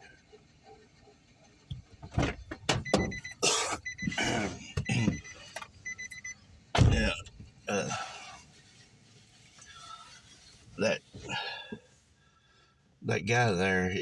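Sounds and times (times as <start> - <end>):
rapid electronic beeping: 2.8 - 6.4
people talking: 4.1 - 5.2, 6.8 - 8.2, 10.8 - 11.5, 13.0 - 14.0.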